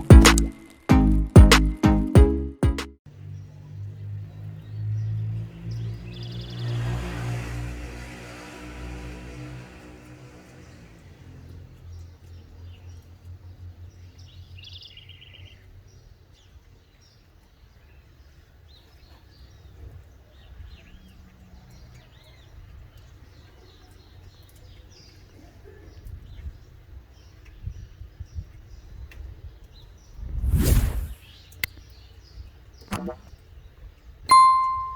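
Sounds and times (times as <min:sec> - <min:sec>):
bird trill: 0:34.3 - 0:34.9.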